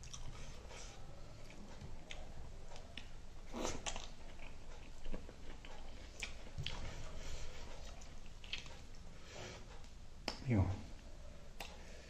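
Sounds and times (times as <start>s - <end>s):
chewing and wet mouth smacks: 0.0s - 0.5s, 1.4s - 7.0s, 7.7s - 9.0s, 11.6s - 11.8s.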